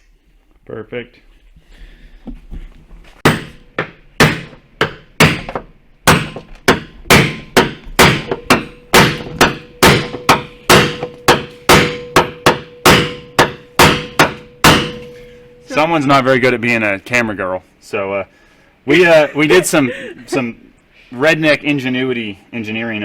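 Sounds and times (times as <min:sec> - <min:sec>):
hammer striking sheet metal: 0:03.2 - 0:15.6
faint metallic ring: 0:14.9 - 0:16.1.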